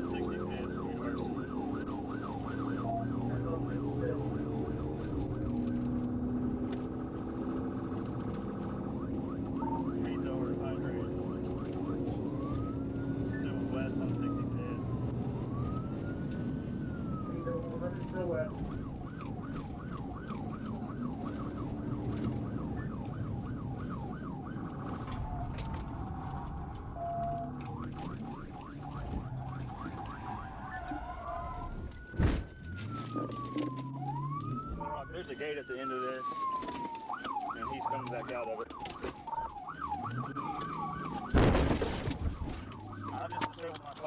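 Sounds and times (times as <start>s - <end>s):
car engine at high speed: 0.0s - 44.0s
police siren yelping: 0.0s - 44.0s.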